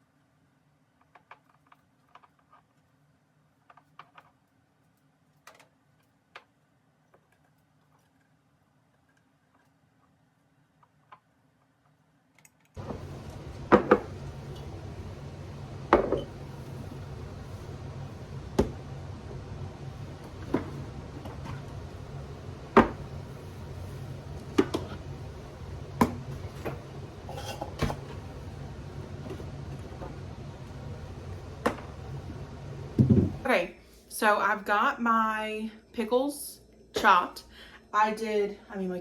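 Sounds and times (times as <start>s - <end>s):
steady low hum: 12.8s - 39.0s.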